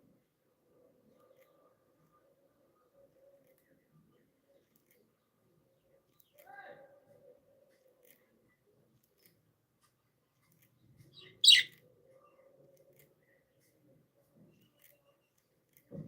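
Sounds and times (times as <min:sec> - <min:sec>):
budgerigar chirp: 0:11.2 - 0:11.7.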